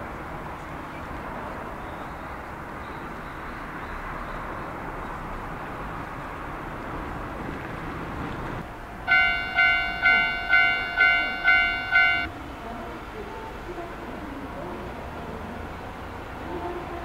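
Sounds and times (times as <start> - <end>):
train wheels rumbling on rail: 4.7 - 17.0.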